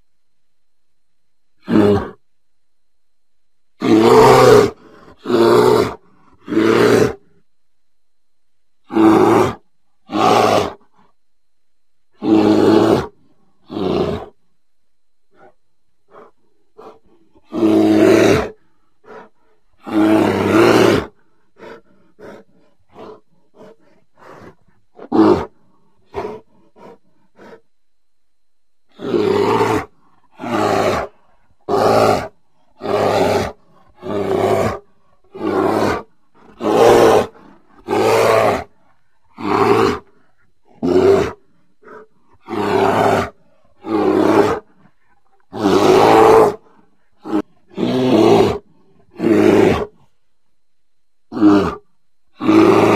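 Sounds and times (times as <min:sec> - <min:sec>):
bear growling: 0:01.6 - 0:02.2, 0:03.8 - 0:07.4, 0:08.8 - 0:11.2, 0:12.1 - 0:14.4, 0:15.3 - 0:27.7, 0:28.9 - 0:50.1, 0:51.3 - 0:52.9
bear grunting: 0:01.6 - 0:02.2, 0:03.8 - 0:07.4, 0:08.8 - 0:11.2, 0:12.1 - 0:14.4, 0:15.3 - 0:27.7, 0:28.9 - 0:50.1, 0:51.3 - 0:52.9.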